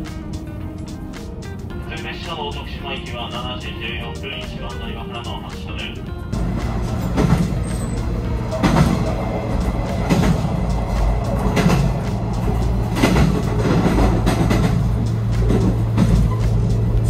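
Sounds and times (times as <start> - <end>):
railcar low hum: 0.0 - 17.0
wheel clack over rail joint: 6.6 - 17.0.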